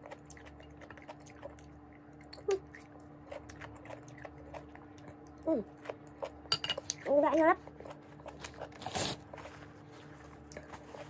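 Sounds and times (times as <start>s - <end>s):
wet chewing: 0.0s - 11.0s.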